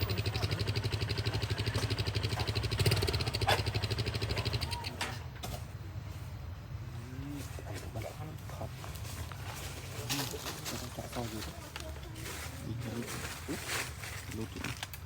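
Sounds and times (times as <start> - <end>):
small engine running: 0.0 - 5.2.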